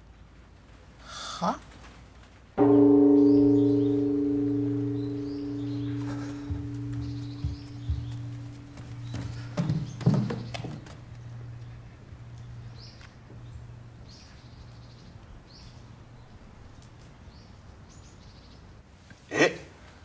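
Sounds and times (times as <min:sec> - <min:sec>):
low steady hum: 0:02.6 - 0:16.7.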